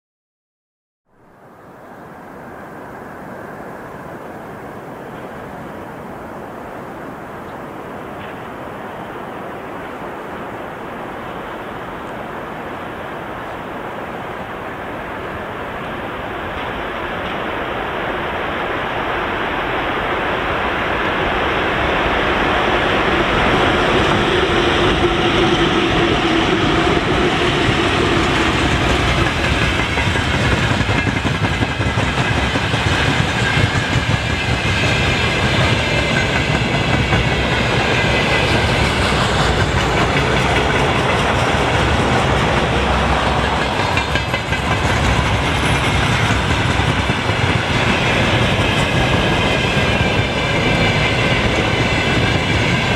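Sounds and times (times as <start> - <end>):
freight train wheels clattering: 23.8 - 52.9.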